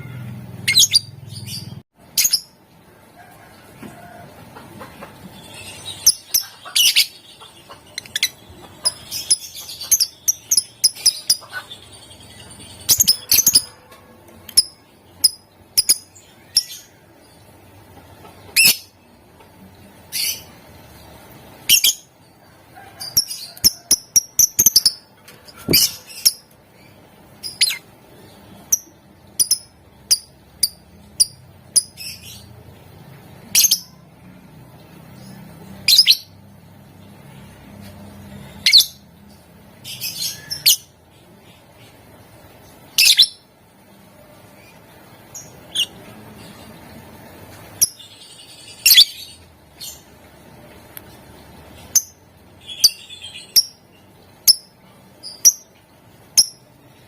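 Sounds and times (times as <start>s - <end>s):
lovebirds chirping: 0.0s - 2.6s, 4.9s - 22.2s, 23.0s - 32.6s, 44.3s - 50.2s, 51.0s - 57.0s.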